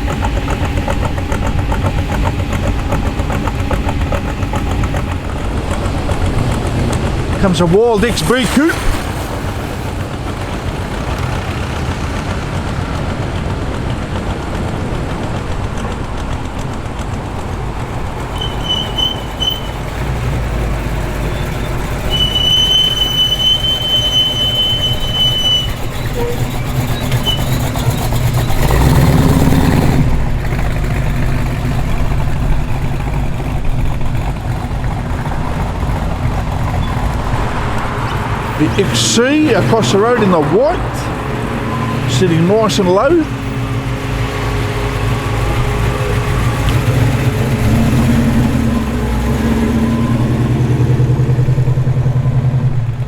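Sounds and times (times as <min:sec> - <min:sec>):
car engine rumbling: 0:00.0 - 0:53.0
high-pitched squeal: 0:18.3 - 0:19.9, 0:21.2 - 0:29.2.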